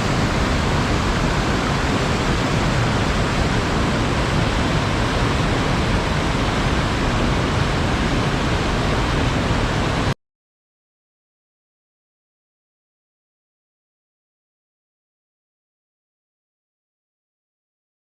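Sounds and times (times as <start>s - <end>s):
waterfall roaring: 0.0s - 10.2s.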